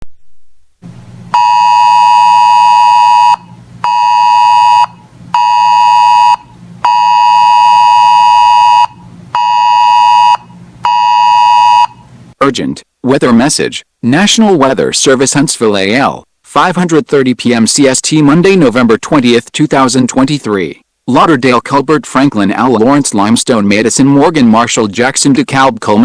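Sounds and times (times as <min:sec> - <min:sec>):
weather radio alert buzzer beeps: 0:01.4 - 0:12.0.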